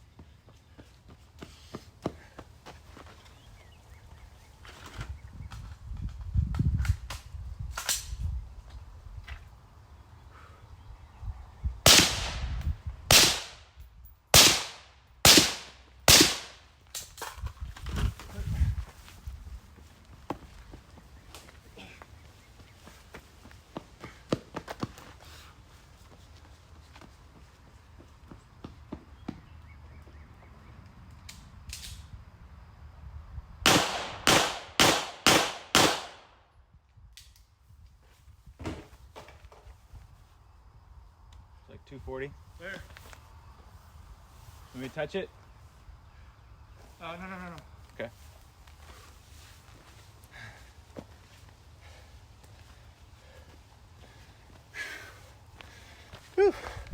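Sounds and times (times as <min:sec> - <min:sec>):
gunshots with echoing tail: 0:11.9 - 0:13.6, 0:14.4 - 0:16.6, 0:33.7 - 0:36.3
pistol shots: 0:11.9 - 0:13.6, 0:14.4 - 0:16.6, 0:33.7 - 0:36.3.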